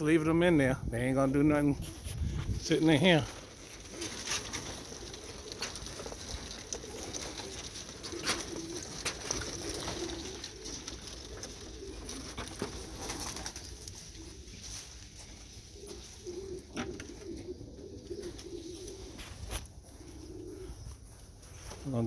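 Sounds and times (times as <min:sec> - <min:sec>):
pigeons cooing: 0:01.6 - 0:22.0.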